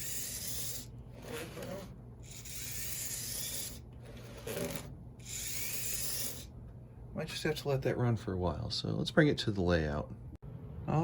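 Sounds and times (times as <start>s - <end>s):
model locomotive motor whirring: 0.0s - 6.5s.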